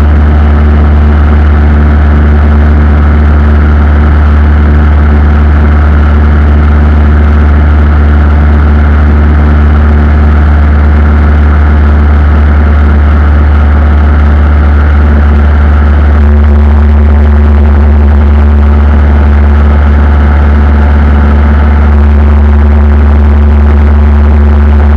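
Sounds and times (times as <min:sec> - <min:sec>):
aircraft engine drone: 0:00.0 - 0:24.9.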